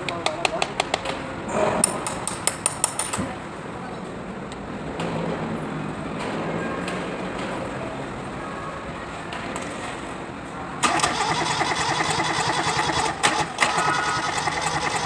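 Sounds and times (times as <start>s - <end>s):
diesel tractor engine starting: 10.8s - 15.0s.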